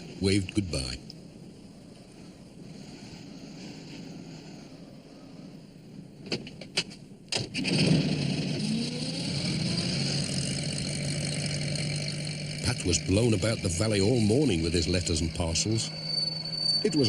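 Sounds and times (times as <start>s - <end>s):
van engine starting and running: 7.3s - 17.0s.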